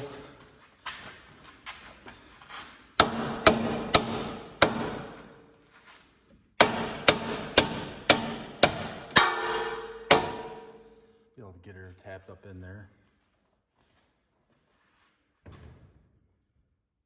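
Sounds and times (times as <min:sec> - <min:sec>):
hammer blows with metallic ring: 0:06.6 - 0:11.1.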